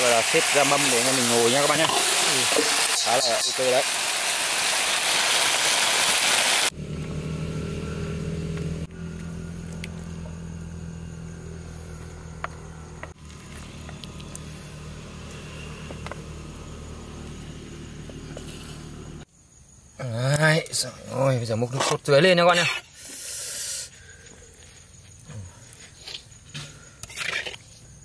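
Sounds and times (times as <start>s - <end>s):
chicken wings sizzling in a wok: 0.0s - 6.7s
low motor hum: 6.7s - 19.3s.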